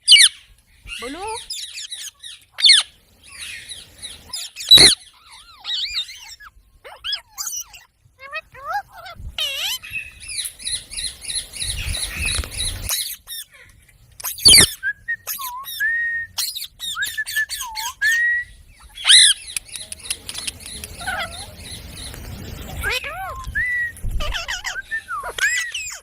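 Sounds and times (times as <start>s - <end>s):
parrot chattering and squawking: 0.1s - 15.8s, 18.8s - 22.1s, 22.7s - 26.0s
parrot screech: 4.3s - 7.8s, 24.2s - 26.0s.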